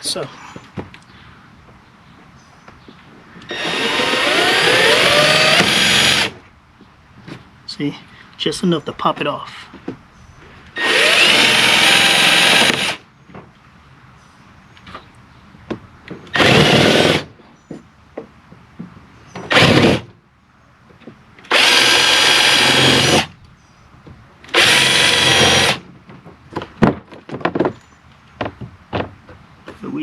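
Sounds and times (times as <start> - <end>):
power drill drilling rivets: 3.4 - 6.4, 10.8 - 13.0, 16.3 - 17.3, 19.3 - 20.1, 21.4 - 23.3, 24.5 - 25.9.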